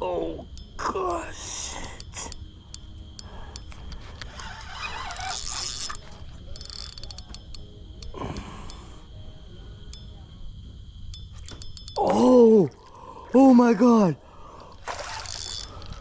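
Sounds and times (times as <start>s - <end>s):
fishing reel clicking: 0.5s - 9.1s, 11.1s - 12.9s, 14.6s - 16.0s.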